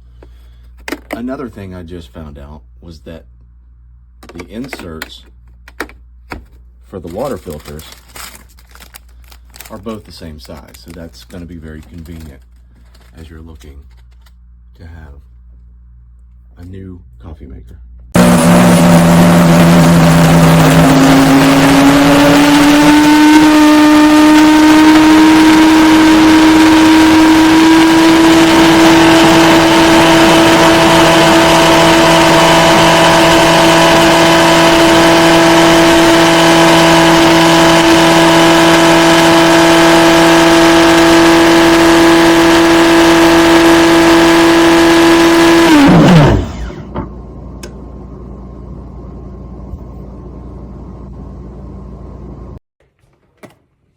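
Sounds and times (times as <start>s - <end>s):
coffee grinder motor whining: 18.2s - 47.7s.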